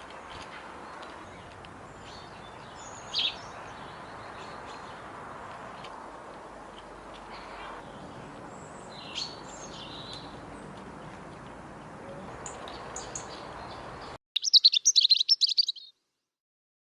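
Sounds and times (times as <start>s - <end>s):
small birds chirping: 0.0s - 5.9s, 7.1s - 11.2s, 11.8s - 15.9s
steady outdoor hiss: 0.0s - 15.6s
rapid high bird twittering: 1.2s - 5.0s, 7.3s - 10.4s, 12.5s - 15.9s.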